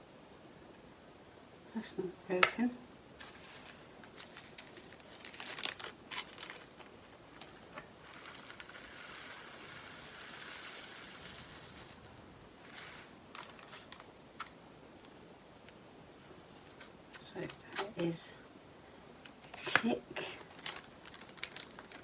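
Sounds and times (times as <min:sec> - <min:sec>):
plastic bags crinkling: 0:03.2 - 0:08.9, 0:20.4 - 0:22.0.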